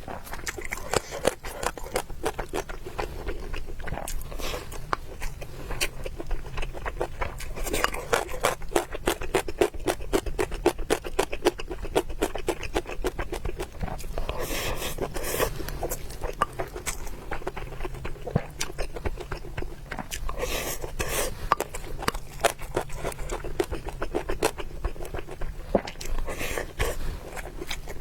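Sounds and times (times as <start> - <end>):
person chewing: 0.0 - 28.0.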